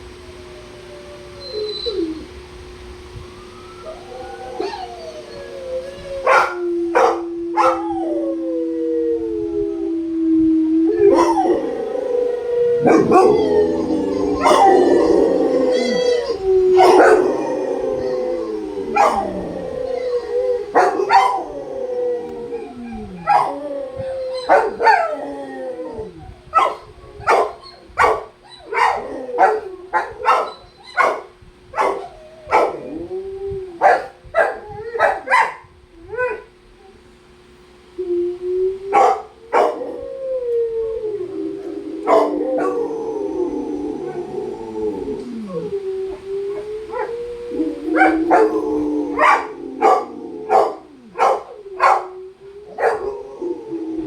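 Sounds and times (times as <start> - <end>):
dogs howling: 0.0 - 54.0
dogs yipping: 6.2 - 7.8, 12.8 - 15.1, 18.9 - 19.4, 24.2 - 25.1, 26.6 - 32.8, 33.8 - 35.6, 38.9 - 39.8, 49.2 - 52.1.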